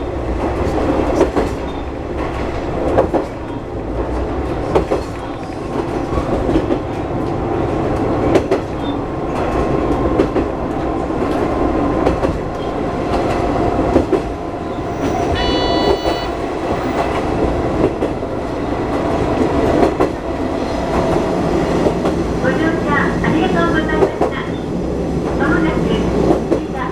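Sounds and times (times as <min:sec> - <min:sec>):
diesel railcar rumbling: 0:00.0 - 0:26.9
brief high tone: 0:14.6 - 0:17.0.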